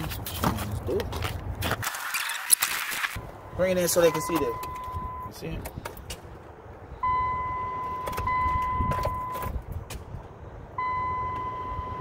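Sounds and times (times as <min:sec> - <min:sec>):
electronic warning chime: 0:03.4 - 0:05.3.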